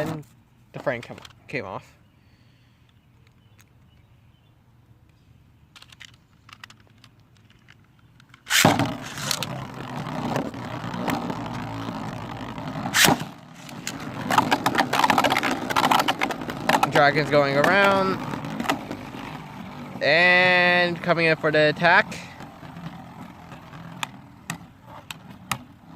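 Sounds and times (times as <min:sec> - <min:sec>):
spinning top launch: 0:08.4 - 0:11.9, 0:12.8 - 0:16.1
spinning tops scraping plastic: 0:08.4 - 0:25.9.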